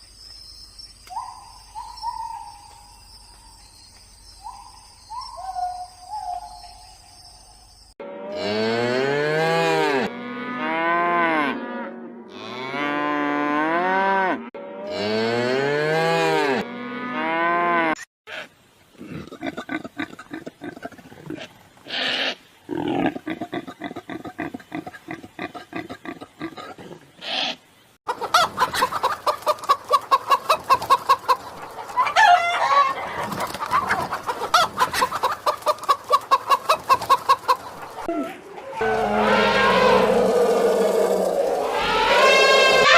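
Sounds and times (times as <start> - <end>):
rising and falling animal calls: 28.2 - 42.9.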